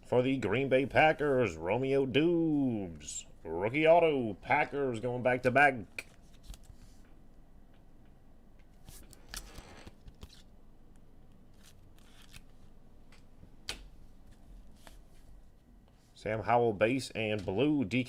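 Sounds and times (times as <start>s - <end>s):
trading cards being flipped: 6.0s - 7.0s, 8.8s - 10.5s, 11.5s - 15.0s.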